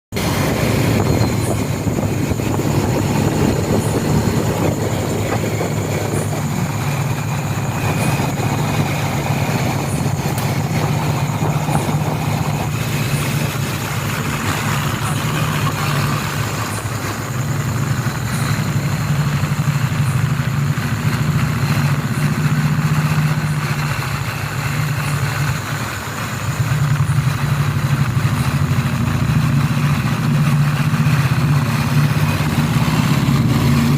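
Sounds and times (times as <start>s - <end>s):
low motor hum: 0.2s - 25.7s.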